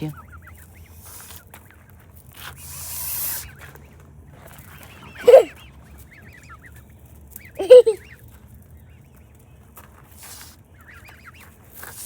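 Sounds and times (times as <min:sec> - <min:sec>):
young birds peeping: 0:00.0 - 0:12.0
goose hissing: 0:05.2 - 0:05.5, 0:07.6 - 0:08.0.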